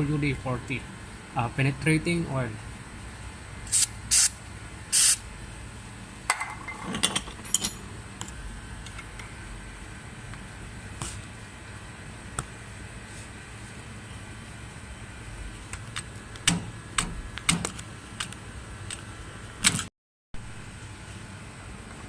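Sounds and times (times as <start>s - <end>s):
aerosol can spraying: 3.7s - 5.2s
tools clinking against metal: 6.3s - 7.9s.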